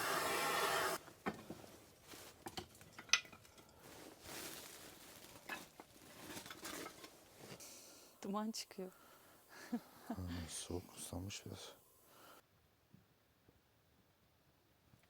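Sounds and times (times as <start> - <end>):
small hard objects clinking: 2.2 - 7.2.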